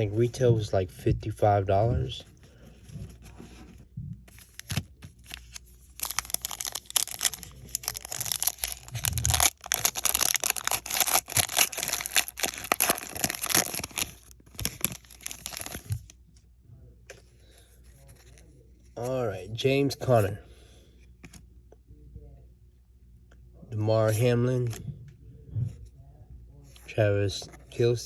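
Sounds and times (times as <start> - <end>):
foil wrapper tearing and crinkling: 4.4 - 16.0.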